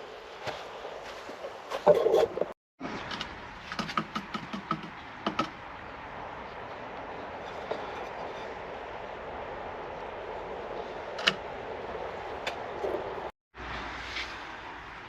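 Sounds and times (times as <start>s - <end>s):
wooden knocks: 3.7s - 5.6s.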